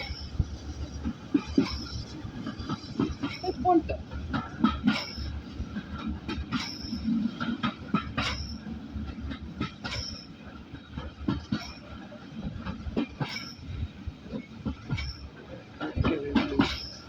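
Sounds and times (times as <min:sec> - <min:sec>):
train carriage rumble: 0:00.0 - 0:17.0
wheels clattering over rails: 0:00.0 - 0:17.0.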